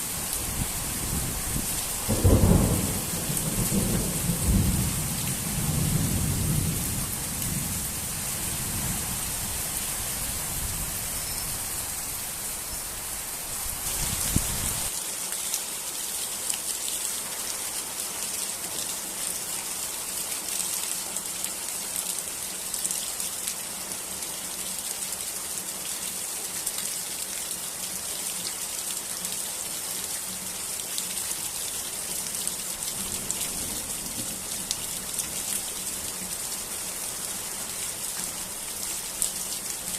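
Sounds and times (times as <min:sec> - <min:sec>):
steady rain pattering: 0:00.0 - 0:39.9
low rumble of thunder: 0:00.5 - 0:09.6.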